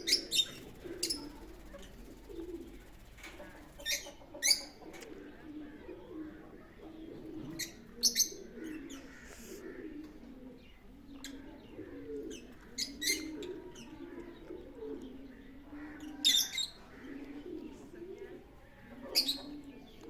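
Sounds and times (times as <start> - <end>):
parrots chirping: 0.0 - 4.7
pigeons cooing: 0.0 - 20.0.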